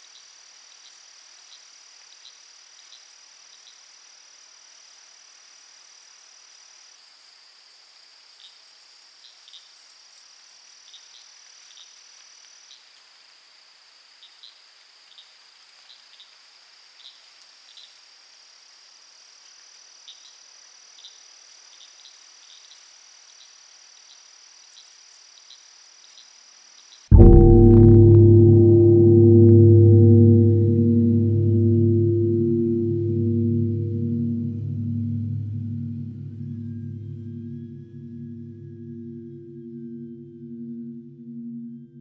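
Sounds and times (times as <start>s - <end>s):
high-pitched insect trill: 0.0s - 27.0s
low gong-like chord: 27.1s - 42.0s.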